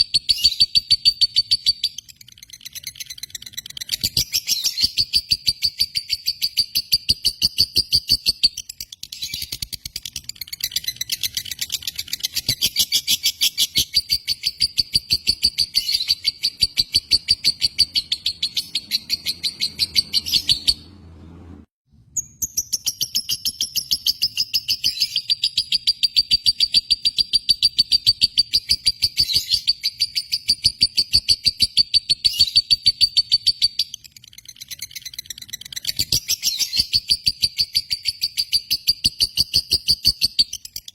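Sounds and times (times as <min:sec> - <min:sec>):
lovebird chattering: 0:00.2 - 0:20.9.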